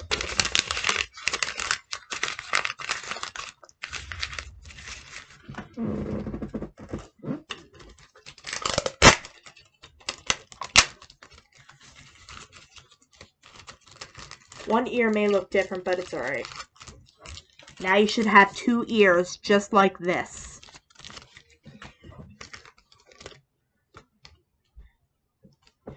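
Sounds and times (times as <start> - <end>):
paper rustling and tearing: 0.0 - 5.8, 7.4 - 18.6, 20.4 - 23.4.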